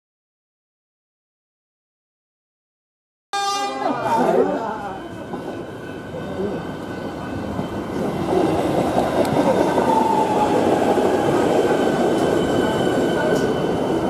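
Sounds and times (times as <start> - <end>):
train wheels rumbling on rails: 4.8 - 14.0.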